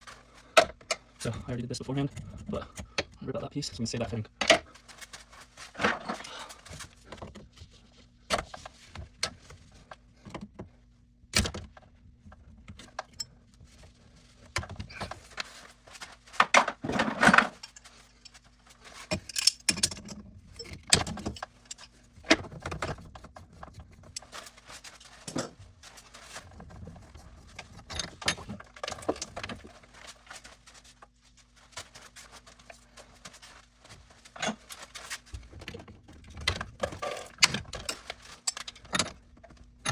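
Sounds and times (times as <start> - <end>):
metal tools and fittings clinking: 16.9 - 22.0, 36.8 - 39.2.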